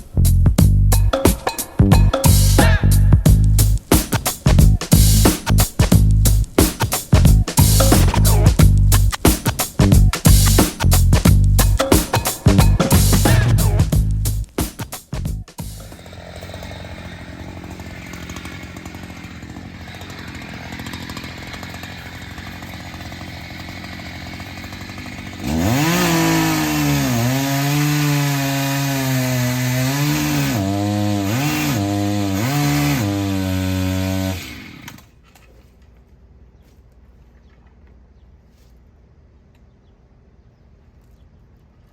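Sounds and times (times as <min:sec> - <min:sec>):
chainsaw cutting into a tree: 0:15.8 - 0:35.1.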